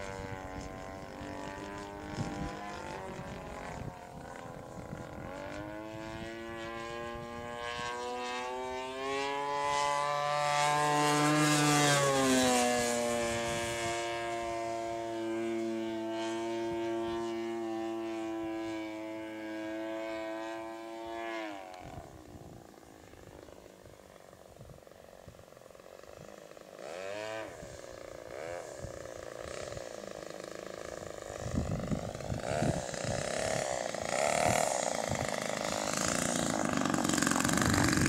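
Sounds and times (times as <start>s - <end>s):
propeller aircraft flying past: 0.0s - 38.0s.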